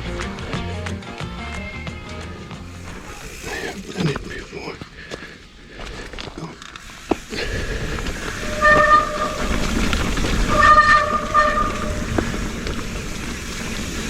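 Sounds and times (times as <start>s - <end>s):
tyre and trail rumble: 2.5s - 14.0s
bike disc brakes honking: 8.2s - 14.0s.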